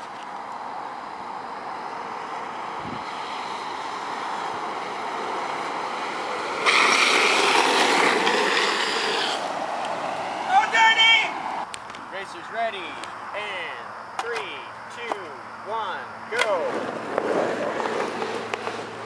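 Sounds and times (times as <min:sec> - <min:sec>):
longboard wheels rolling on asphalt: 0:00.0 - 0:12.0, 0:16.6 - 0:19.0
rushing wind noise: 0:00.9 - 0:12.5.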